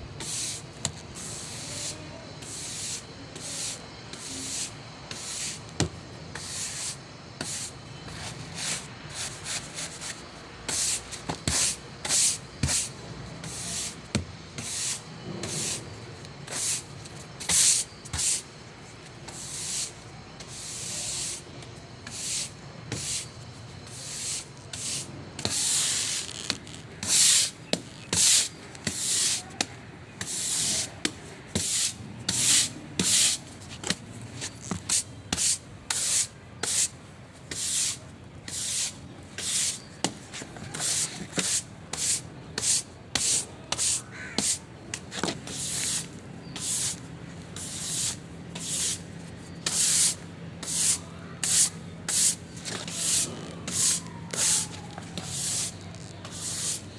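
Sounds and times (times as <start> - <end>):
rough scrubbing strokes: 49.7 - 56.8.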